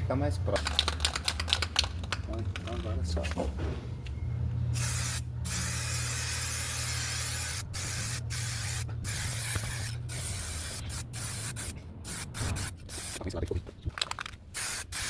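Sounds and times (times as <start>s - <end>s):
spray paint hissing: 4.7s - 13.2s, 14.5s - 15.0s.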